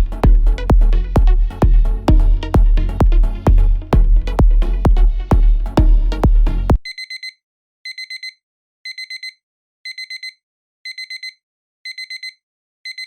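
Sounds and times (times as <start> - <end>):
high-pitched timer alarm beeps: 6.8 - 13.0.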